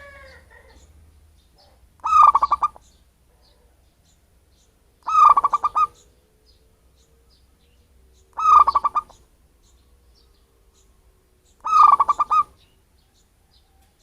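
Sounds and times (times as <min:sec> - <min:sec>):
dove cooing: 0:00.0 - 0:01.0, 0:01.6 - 0:03.8, 0:05.0 - 0:07.4, 0:08.3 - 0:09.2, 0:11.6 - 0:12.6
faint small bird chirps: 0:00.0 - 0:10.9, 0:11.5 - 0:14.0.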